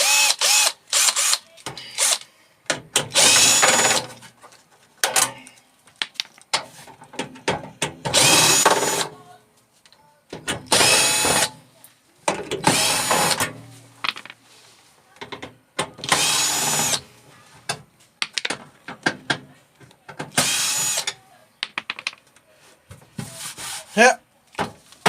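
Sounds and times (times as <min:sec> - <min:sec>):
power drill backing out screws: 0:03.1 - 0:04.1, 0:08.1 - 0:09.0, 0:12.7 - 0:13.4, 0:16.0 - 0:17.0, 0:20.4 - 0:21.1
handling clicks and knocks: 0:21.6 - 0:22.4.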